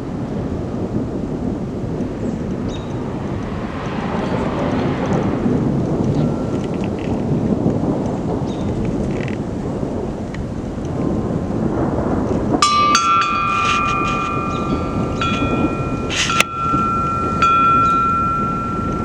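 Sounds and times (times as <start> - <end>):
rain: 0.0 - 19.0
thunderstorm rumbling: 0.0 - 19.0
metallic chime tones ringing: 12.6 - 19.0
sharp clatter: 12.6 - 19.0.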